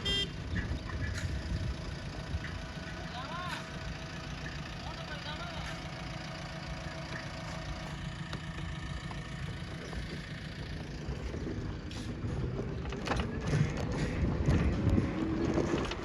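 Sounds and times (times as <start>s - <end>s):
diesel engine running: 0.0s - 16.0s
knocks and clatter: 11.1s - 16.0s.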